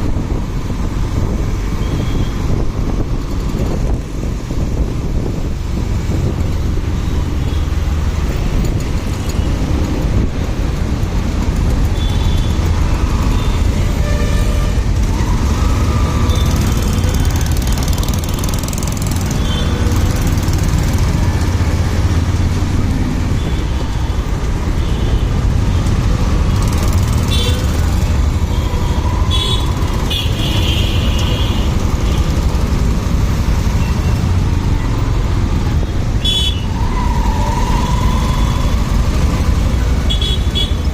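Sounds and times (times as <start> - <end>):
wind rumble on microphone: 0.0 - 7.4
motorcycle engine: 10.8 - 40.9
vehicle horn toots: 36.2 - 36.7, 40.1 - 40.9.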